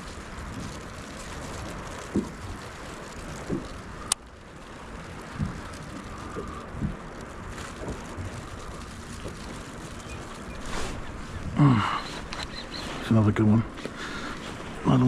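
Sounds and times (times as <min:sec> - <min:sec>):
water around a kayak: 0:00.0 - 0:15.0
wind: 0:00.0 - 0:15.0.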